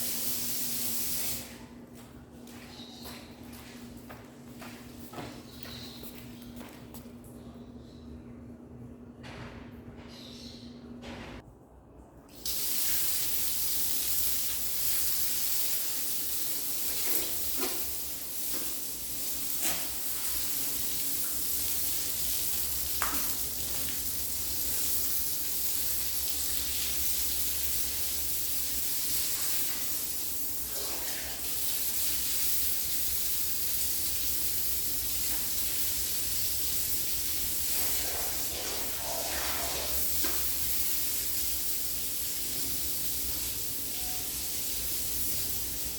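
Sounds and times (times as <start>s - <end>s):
water spraying hiss: 0.0s - 1.6s, 12.4s - 45.9s.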